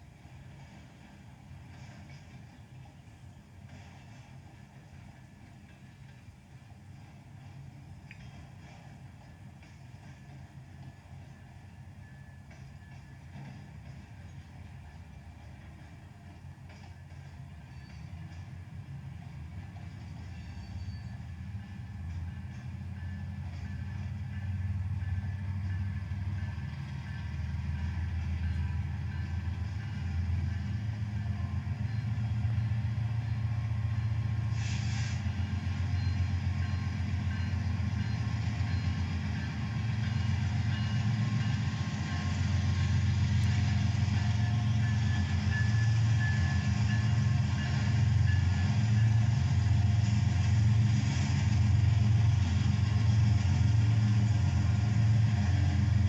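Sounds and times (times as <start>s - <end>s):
locomotive engines rumbling: 13.2s - 56.0s
short hiss: 34.5s - 35.3s.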